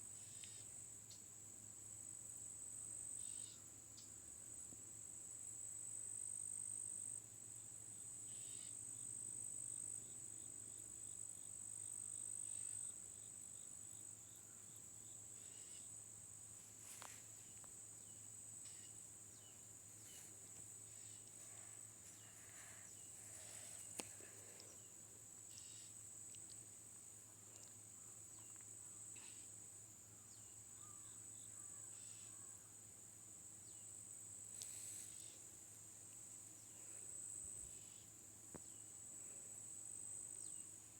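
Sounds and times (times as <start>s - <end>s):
faint low hum: 0.1s - 40.9s
crickets trilling: 5.0s - 40.9s.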